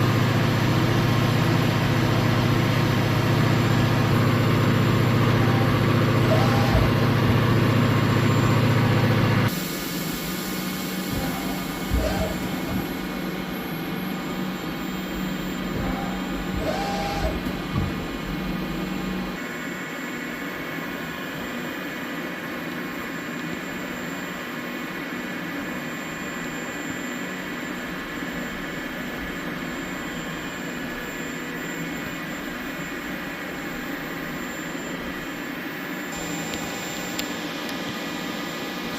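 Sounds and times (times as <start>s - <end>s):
lathe machine hum: 0.0s - 19.5s
lower hum: 5.2s - 19.4s.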